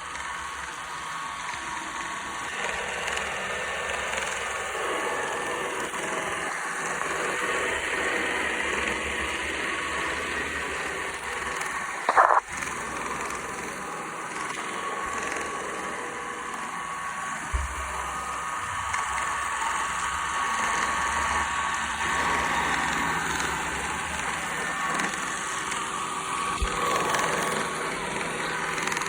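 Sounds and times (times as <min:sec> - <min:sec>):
robot vacuum whirring: 0:22.0 - 0:29.0.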